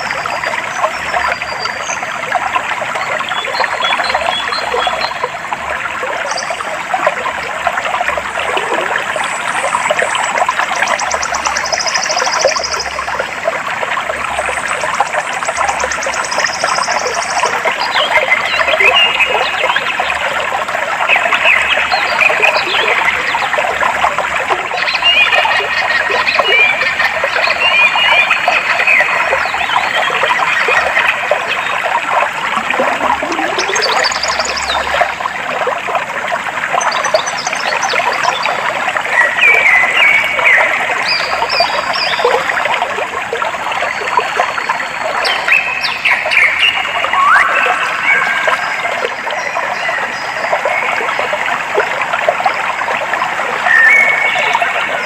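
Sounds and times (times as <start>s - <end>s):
water flowing and trickling: 0.0s - 55.0s
birds chirping: 32.3s - 35.0s.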